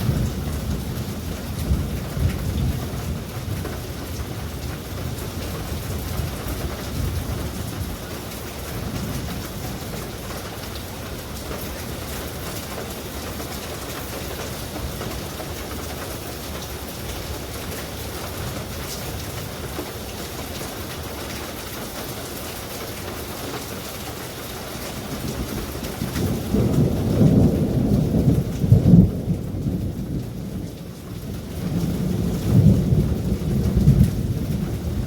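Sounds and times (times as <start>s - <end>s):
thunder rumbling: 0.0s - 19.7s, 24.9s - 35.0s
steady rain: 0.0s - 35.0s.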